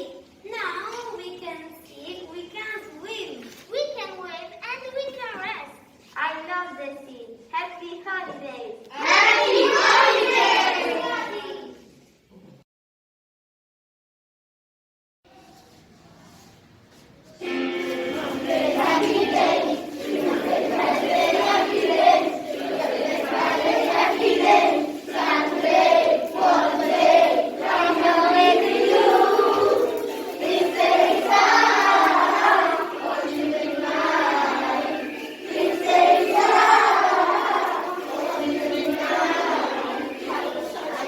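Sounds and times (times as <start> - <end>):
children singing in chorus: 8.9 - 11.6, 17.4 - 41.0.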